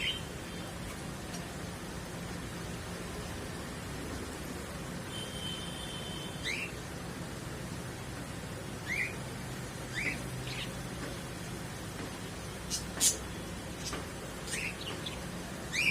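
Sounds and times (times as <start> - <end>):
pet bird whistling and chirping: 8.8 - 9.2, 9.9 - 10.7, 14.5 - 15.9.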